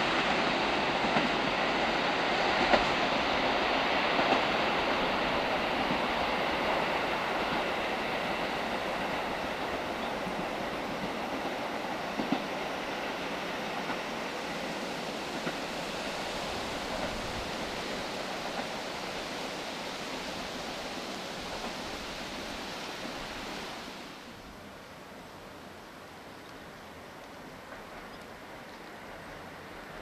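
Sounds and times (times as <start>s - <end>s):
train wheels rushing on rails: 0.0s - 24.8s, 26.9s - 30.0s
faint ticks: 26.3s - 28.9s.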